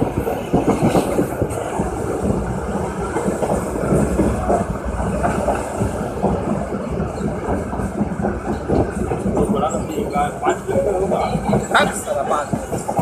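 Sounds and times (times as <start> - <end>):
train wheels clattering over rails: 0.0 - 13.0.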